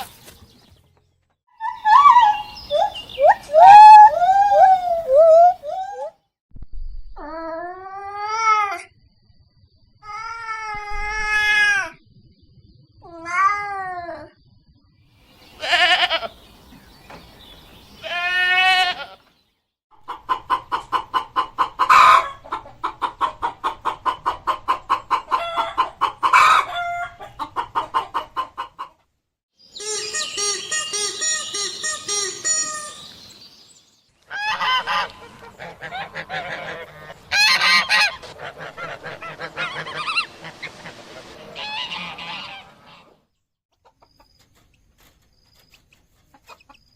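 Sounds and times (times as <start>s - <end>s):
goat bleating: 15.6s - 16.3s, 18.0s - 19.2s
chicken clucking: 20.0s - 29.0s, 34.4s - 43.1s, 43.7s - 44.7s, 45.7s - 46.9s
harsh fowl calls: 34.3s - 43.2s.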